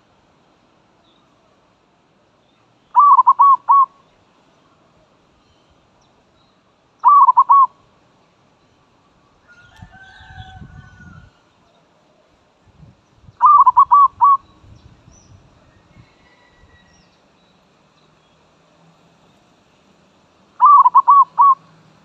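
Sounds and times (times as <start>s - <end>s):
dove cooing: 3.0s - 3.9s, 7.0s - 7.7s, 13.4s - 14.4s, 20.6s - 21.7s.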